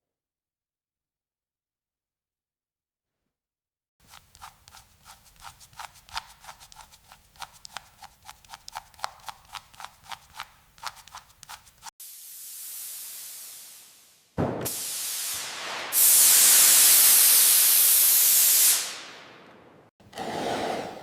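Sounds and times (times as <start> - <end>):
air spraying hiss: 12.0 - 19.1.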